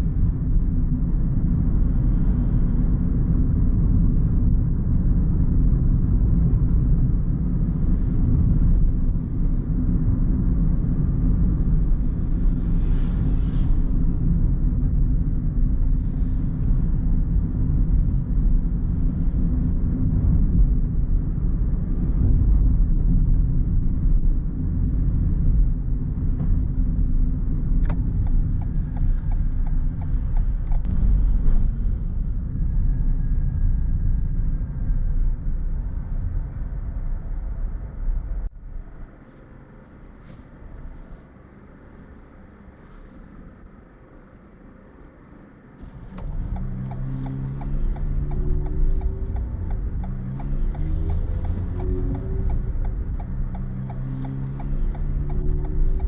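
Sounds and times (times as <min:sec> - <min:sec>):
car engine rumble: 0:00.0 - 0:56.0
tyres on road: 0:06.4 - 0:56.0
faint ticks: 0:46.1 - 0:56.0.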